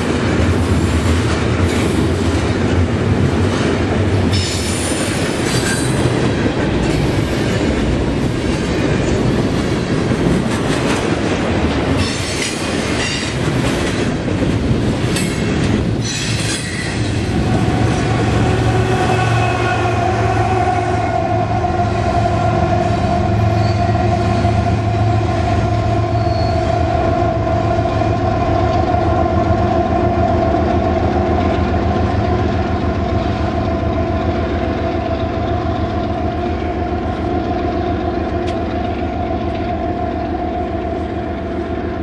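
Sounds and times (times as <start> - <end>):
locomotive whine: 0.0 - 42.0
locomotive low rumble: 16.9 - 42.0.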